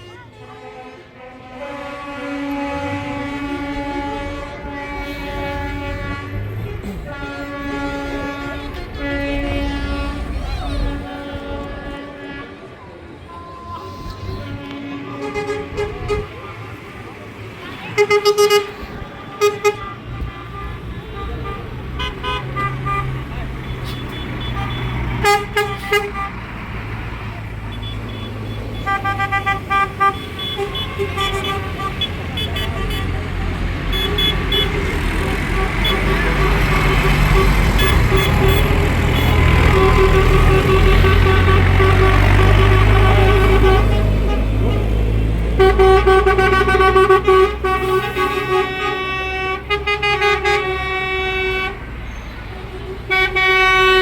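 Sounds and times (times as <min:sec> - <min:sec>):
engines rumbling: 0:00.0 - 0:54.0
vehicle horns tooting: 0:00.0 - 0:54.0
low engine drone: 0:02.3 - 0:12.4.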